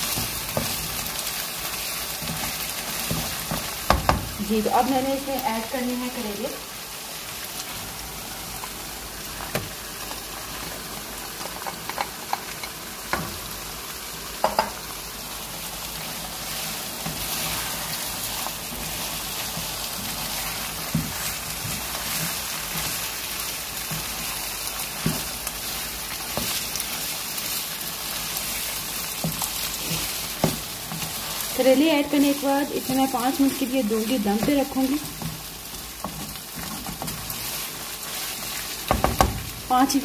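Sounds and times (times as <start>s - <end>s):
food sizzling in a wok: 0.0s - 40.0s
spatula knocking and scraping pan: 2.2s - 4.4s, 29.1s - 31.2s, 38.8s - 39.5s.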